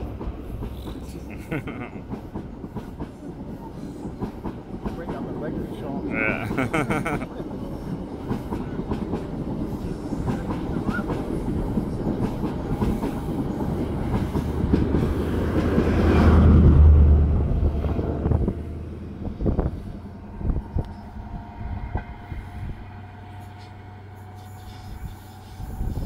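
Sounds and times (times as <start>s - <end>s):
train rumble and clickety-clack: 0.0s - 26.0s
deep diesel engine drone: 15.2s - 24.4s.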